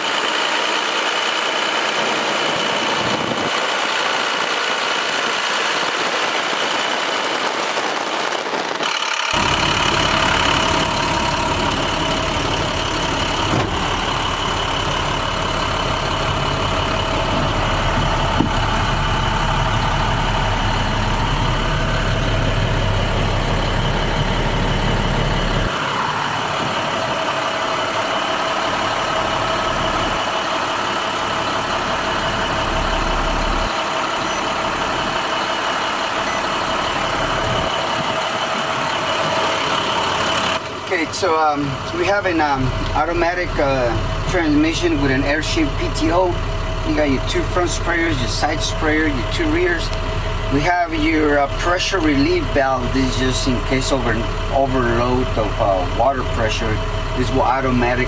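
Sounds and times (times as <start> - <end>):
diesel truck engine idling: 0.0 - 58.0
high whine: 1.6 - 58.0
deep low rumble: 9.4 - 40.6.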